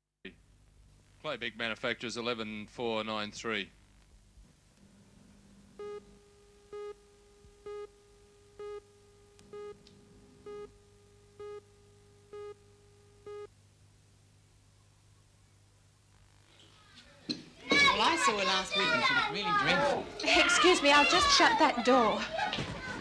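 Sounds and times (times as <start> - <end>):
faint low hum: 0.3 - 23.0
short electronic beeps: 8.6 - 8.8, 9.5 - 9.8, 10.4 - 10.7, 11.4 - 11.7, 12.3 - 12.6, 13.2 - 13.5.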